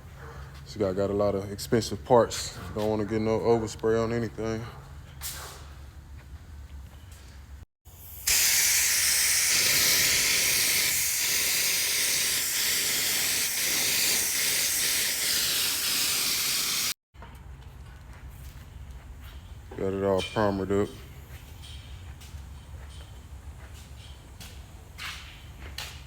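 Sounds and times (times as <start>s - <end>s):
paint spray gun hissing: 7.9s - 17.0s.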